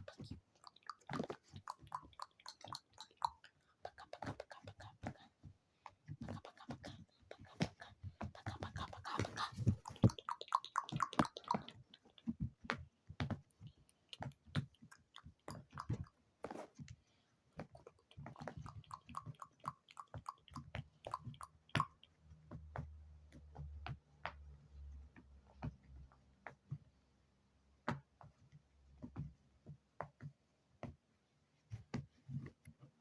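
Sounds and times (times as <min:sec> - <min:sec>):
small clicks pops and taps: 0:00.0 - 0:05.3, 0:06.1 - 0:16.7, 0:17.6 - 0:24.5.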